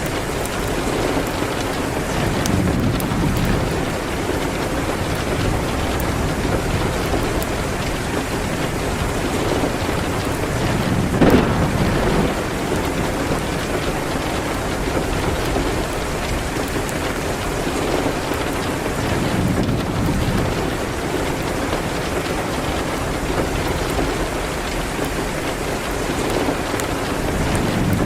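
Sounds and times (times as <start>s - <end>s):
rain hitting a window: 0.0s - 28.0s
sharp crack of fire: 0.0s - 28.0s
fireplace crackling: 8.9s - 22.5s.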